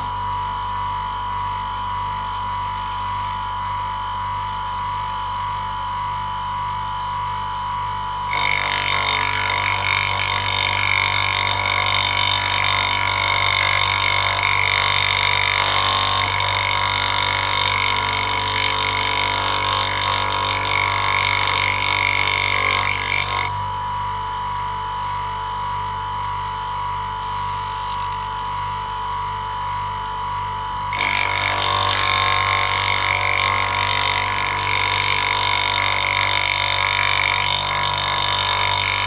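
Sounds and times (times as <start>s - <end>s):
grinding wheel humming: 0.0s - 39.0s
tool bit grinding on wheel: 8.2s - 23.6s, 30.9s - 39.0s.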